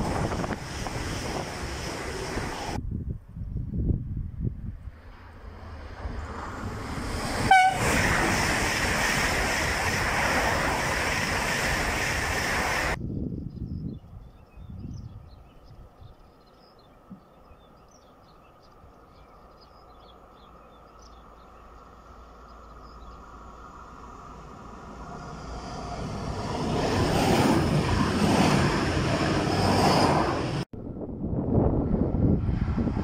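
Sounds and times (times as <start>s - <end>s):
train passing on rails: 0.0s - 2.8s, 4.4s - 13.0s, 18.1s - 33.0s.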